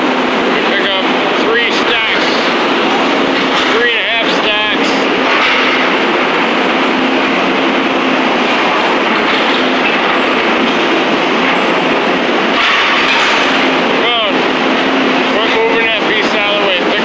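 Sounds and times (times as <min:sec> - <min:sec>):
machine clattering over rubble: 0:01.9 - 0:06.2, 0:08.3 - 0:13.8.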